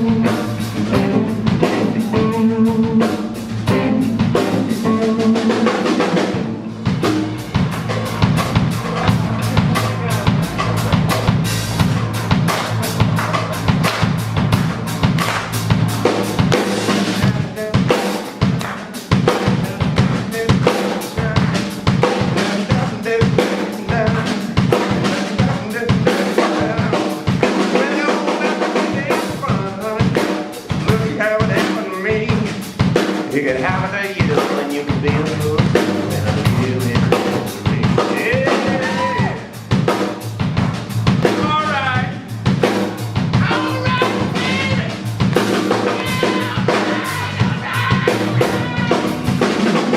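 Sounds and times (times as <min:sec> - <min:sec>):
wavering lead guitar lines: 0:00.0 - 0:13.2
bass line: 0:00.0 - 0:49.9
drum kit hitting hard: 0:00.0 - 0:49.9.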